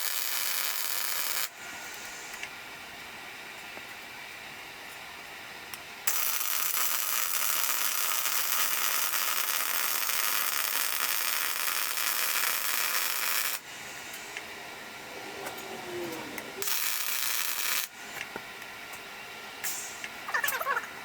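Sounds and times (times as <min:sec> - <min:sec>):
welding arc hissing: 0:00.0 - 0:02.5, 0:06.0 - 0:18.4, 0:19.6 - 0:20.6.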